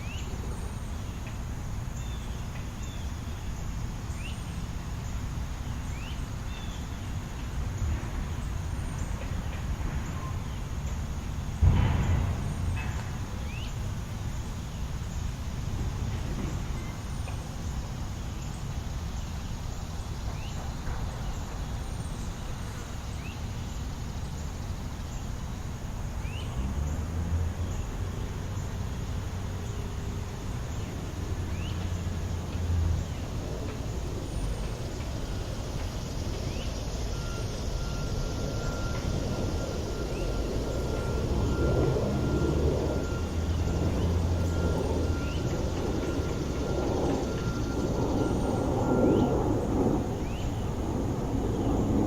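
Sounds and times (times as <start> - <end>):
road traffic rumble: 0.0 - 52.0
heavy vehicle passing: 26.6 - 52.0.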